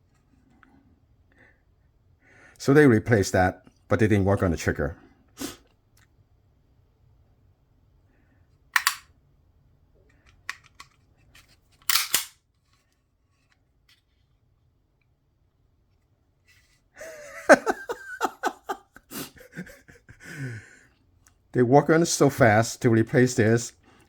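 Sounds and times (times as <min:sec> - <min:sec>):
pistol action clacking: 0:08.8 - 0:09.1, 0:11.8 - 0:12.4.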